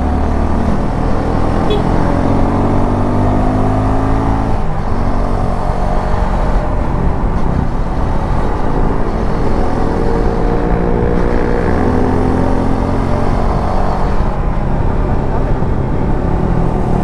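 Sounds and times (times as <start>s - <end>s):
motorcycle engine running: 1.4s - 2.5s.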